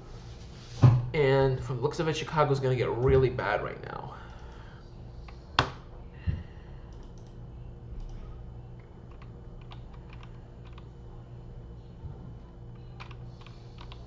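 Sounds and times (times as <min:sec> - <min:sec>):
steady low hum: 0:00.0 - 0:14.0
typing on computer keyboard: 0:09.1 - 0:10.8.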